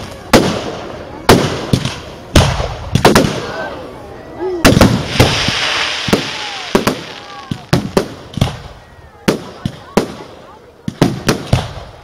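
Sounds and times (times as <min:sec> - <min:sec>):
firework shells bursting: 0:04.6 - 0:08.7
hissing crackle: 0:04.6 - 0:12.0.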